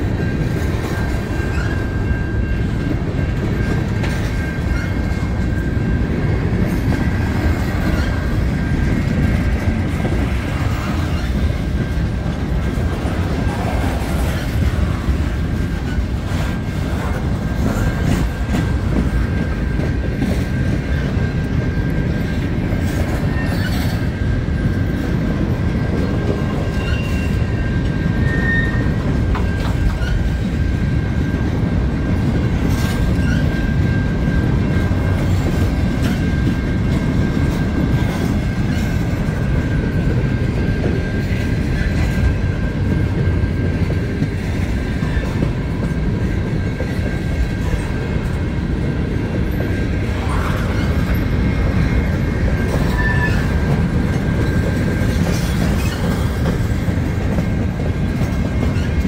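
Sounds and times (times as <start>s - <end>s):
freight train cars rumbling: 0.0s - 59.0s
high wheel squeal: 0.2s - 5.9s, 23.2s - 24.1s, 26.5s - 30.4s, 32.7s - 34.9s, 50.2s - 56.6s.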